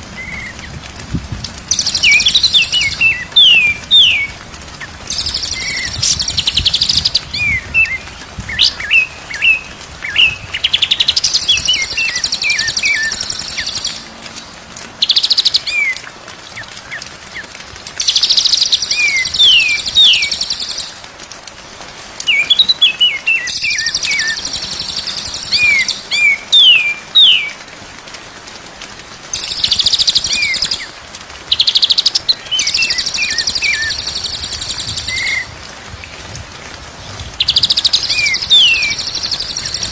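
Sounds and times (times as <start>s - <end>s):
bird song with whistles and trills: 1.7s - 4.4s, 5.1s - 14.0s, 18.0s - 21.0s, 22.3s - 27.6s, 29.4s - 30.9s, 31.5s - 35.6s, 37.4s - 39.9s.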